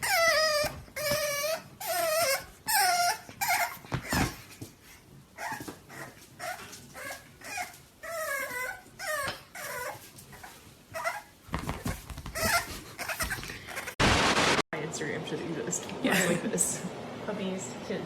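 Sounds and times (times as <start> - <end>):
dog whining: 0.0 - 4.5, 5.4 - 14.0.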